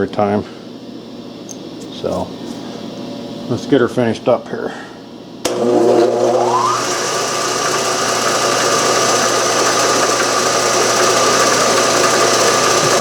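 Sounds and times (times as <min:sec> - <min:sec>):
milling machine running: 0:05.5 - 0:13.0.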